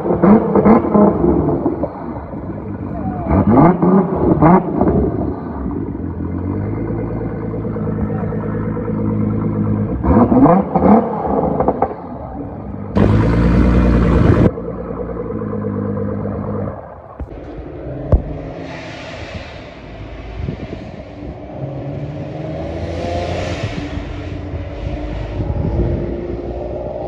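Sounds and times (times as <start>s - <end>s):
car engines revving: 0.0s - 27.0s
loud rushing noise: 17.2s - 27.0s.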